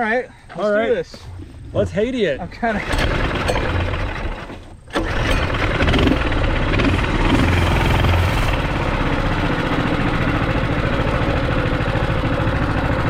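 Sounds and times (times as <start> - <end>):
mini bike engine running: 2.8 - 13.0.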